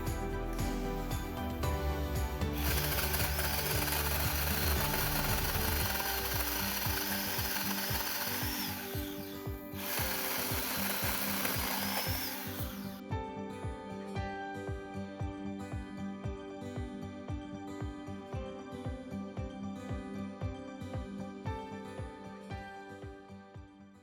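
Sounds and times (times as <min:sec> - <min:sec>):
background music: 0:00.0 - 0:24.0
chainsaw cutting wood: 0:02.4 - 0:13.0.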